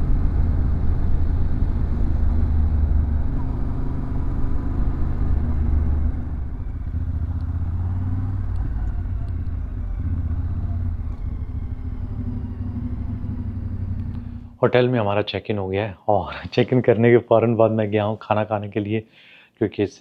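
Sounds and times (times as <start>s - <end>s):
motorcycle engine running: 0.0s - 14.6s
road and wind noise: 0.0s - 14.6s.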